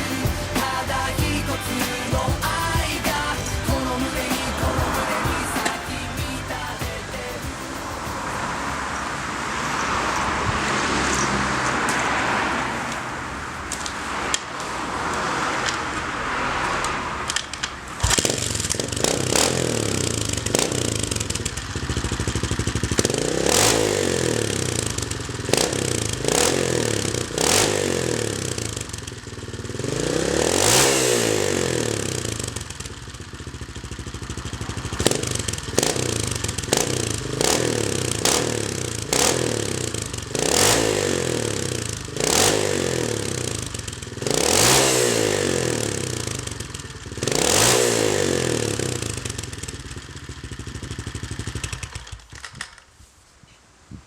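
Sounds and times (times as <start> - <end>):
motorcycle engine revving: 0.0 - 52.9
sharp click: 16.8 - 18.3.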